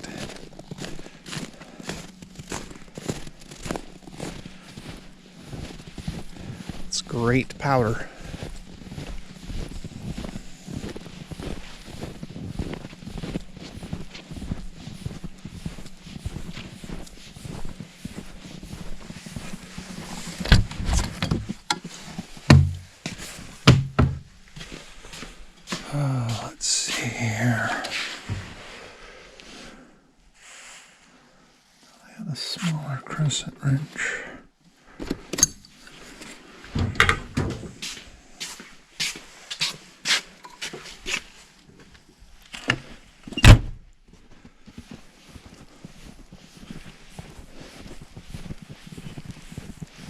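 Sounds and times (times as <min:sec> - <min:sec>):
hard objects knocking and clunking: 0:20.5 - 0:21.9, 0:22.5 - 0:22.9, 0:23.7 - 0:24.3, 0:36.8 - 0:37.7
knocks: 0:22.5 - 0:22.8, 0:23.7 - 0:24.3
heavy thump: 0:22.5 - 0:22.9, 0:23.7 - 0:24.3.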